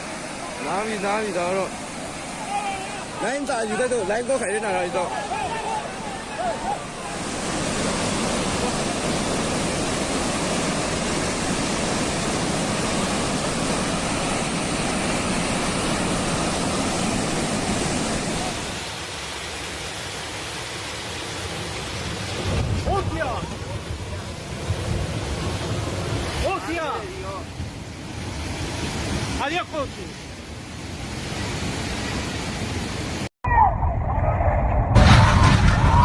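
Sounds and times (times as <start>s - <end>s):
people calling out: 5.0s - 7.2s.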